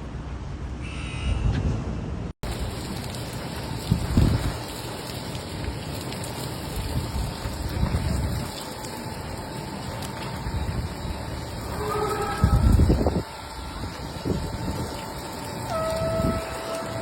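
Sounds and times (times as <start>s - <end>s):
heavy rain: 2.4s - 17.0s
wind gusts on microphone: 3.7s - 4.8s, 6.8s - 8.7s, 10.4s - 17.0s.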